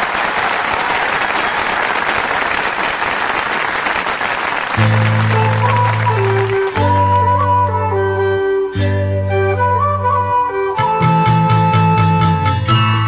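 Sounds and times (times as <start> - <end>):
audience applauding: 0.0 - 7.8
band playing instrumental intro: 4.8 - 13.0.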